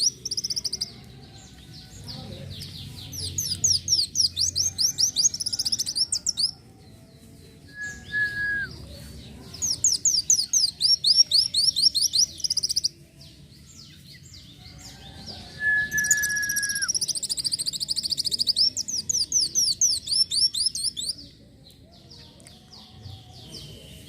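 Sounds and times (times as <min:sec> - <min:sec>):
bird whistle: 0:15.6 - 0:17.0.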